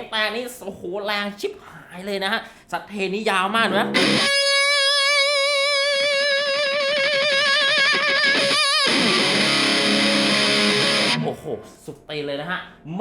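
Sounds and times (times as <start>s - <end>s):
distorted electric guitar: 3.9s - 11.4s.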